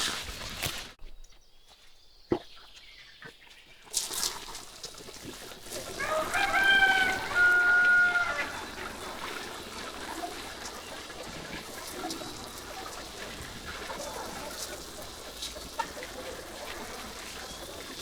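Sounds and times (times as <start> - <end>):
rooster crowing: 5.9 - 9.1.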